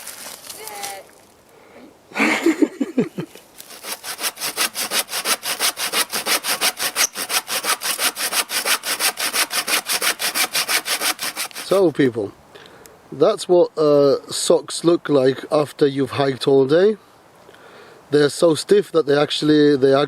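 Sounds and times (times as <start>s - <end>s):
hand saw cutting wood: 3.6s - 11.8s
saw squealing: 3.7s - 11.8s.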